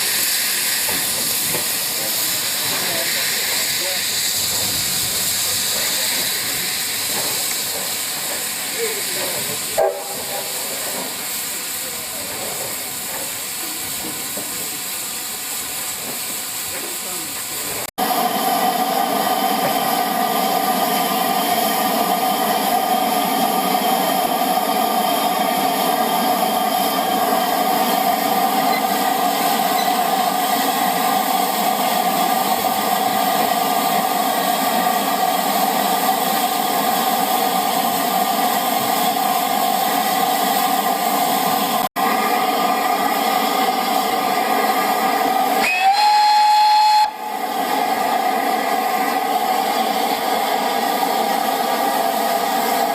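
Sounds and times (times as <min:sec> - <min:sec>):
steam locomotive hissing: 0:00.0 - 0:52.9
train whistle blast: 0:45.6 - 0:47.3.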